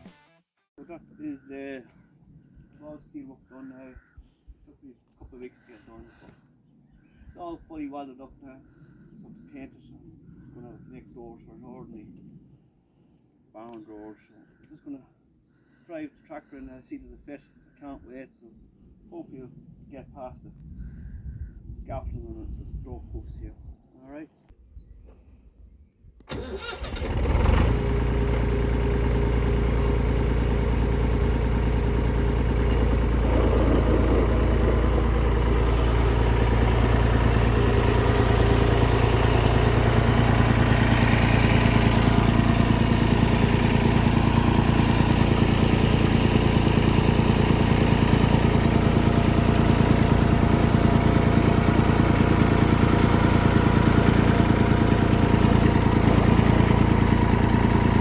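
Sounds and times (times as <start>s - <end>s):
tractor diesel engine: 26.3s - 58.0s.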